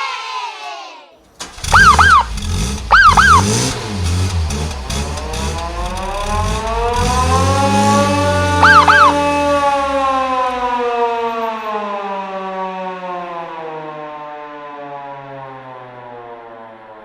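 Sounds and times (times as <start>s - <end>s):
siren chirps: 1.6s - 3.8s, 5.2s - 16.7s
siren winding down: 1.6s - 3.8s, 4.9s - 13.8s.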